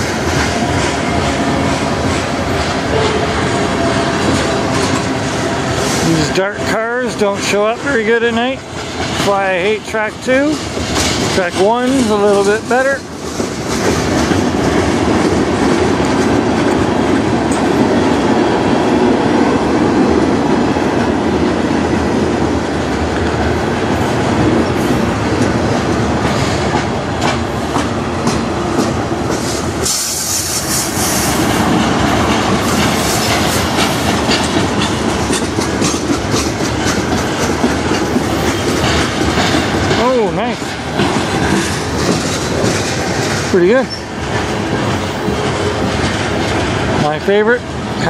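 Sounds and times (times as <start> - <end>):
freight train rolling past: 0.0 - 48.0
wheels clicking over rails: 31.4 - 48.0.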